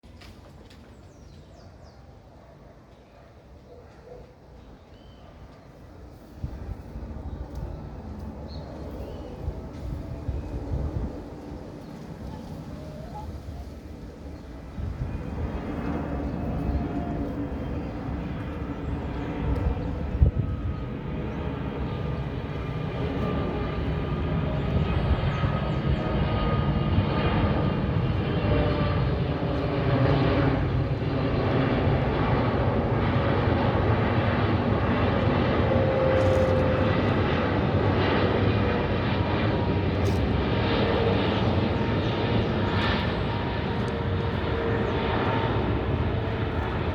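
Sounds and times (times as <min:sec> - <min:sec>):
faint whining engine tones: 0:00.1 - 0:46.9
jet engines rumbling: 0:03.4 - 0:46.9.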